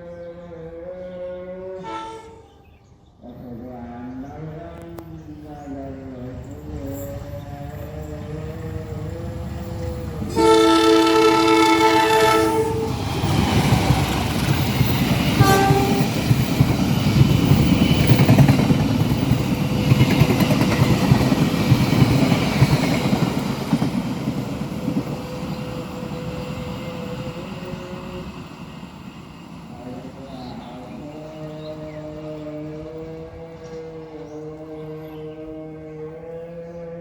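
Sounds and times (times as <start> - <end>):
locomotive horn blast: 1.8 - 2.6, 10.3 - 13.0, 15.4 - 16.2
train engine rumbling: 4.9 - 34.7.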